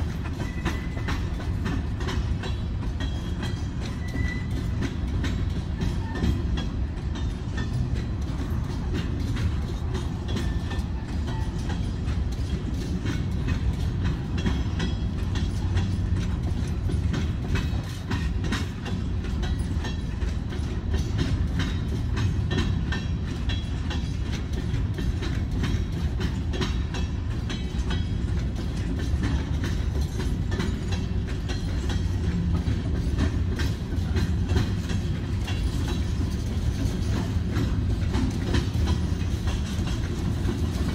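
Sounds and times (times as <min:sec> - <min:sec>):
freight train wheels rumbling: 0:00.0 - 0:40.9
wheels and couplings clanking: 0:00.0 - 0:40.9.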